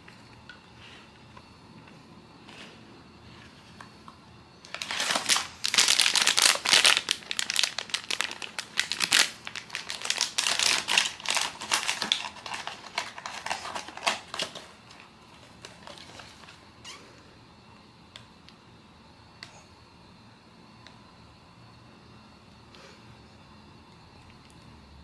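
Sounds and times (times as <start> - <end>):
packaging wrapper crinkling: 4.6 - 16.6.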